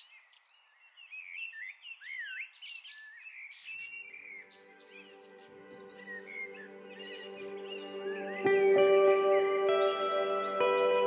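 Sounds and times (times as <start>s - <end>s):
birds chirping and whistling: 0.0s - 11.0s
soft music with held notes: 3.9s - 11.0s.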